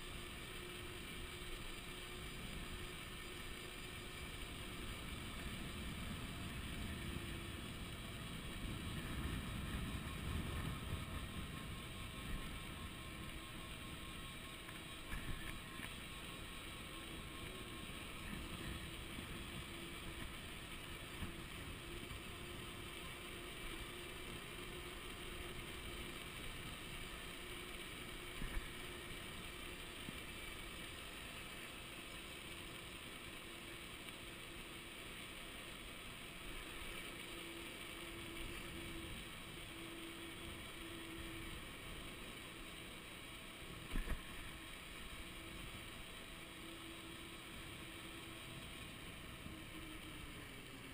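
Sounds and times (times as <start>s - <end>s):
wind and road noise: 0.0s - 31.7s
electric motor whine: 0.0s - 50.9s.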